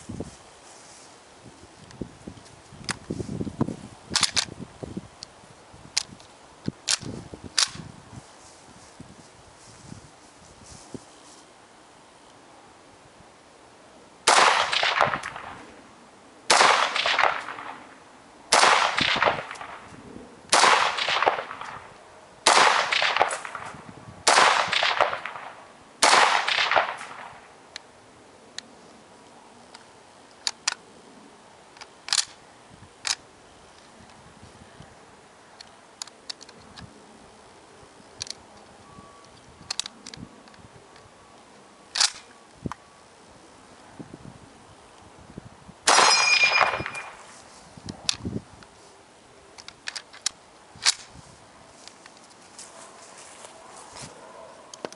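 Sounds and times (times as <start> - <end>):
rifle shots with rolling echo: 14.2 - 15.7, 16.5 - 19.9, 20.5 - 27.6, 45.9 - 47.3.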